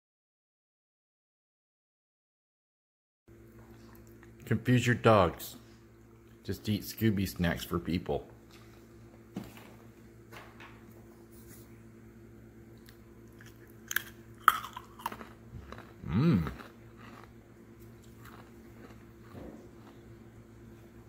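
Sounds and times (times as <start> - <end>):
crunchy snacks being chewed: 12.8 - 20.3.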